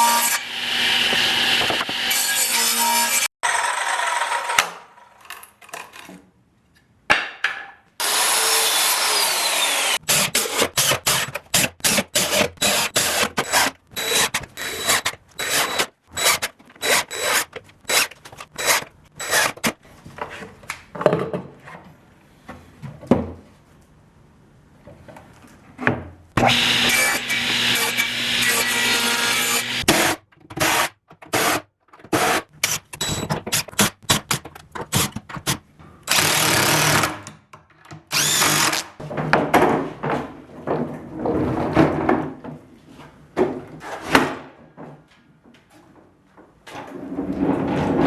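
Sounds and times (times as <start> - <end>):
hand tools working wood: 8.1 - 19.8, 26.4 - 31.5.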